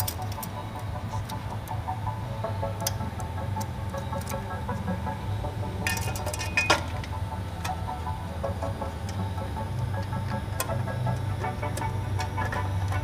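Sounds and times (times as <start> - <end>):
steady low hum: 0.0 - 13.0
metal pipes clinking and knocking: 5.8 - 7.2.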